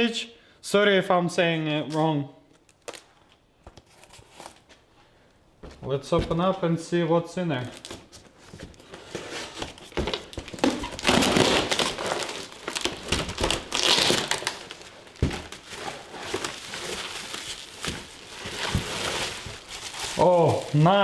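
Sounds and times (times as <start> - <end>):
packaging crinkling and rustling: 2.5 - 4.8, 7.6 - 21.0.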